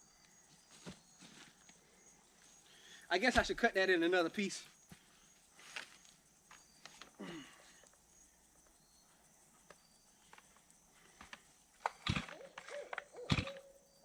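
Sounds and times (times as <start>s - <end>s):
owl hooting: 12.0s - 14.0s.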